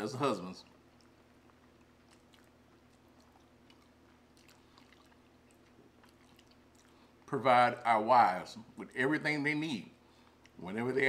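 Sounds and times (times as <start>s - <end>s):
low steady hum: 0.0s - 11.0s
chewing mouth clicks and smacks: 0.6s - 7.3s, 10.2s - 10.6s.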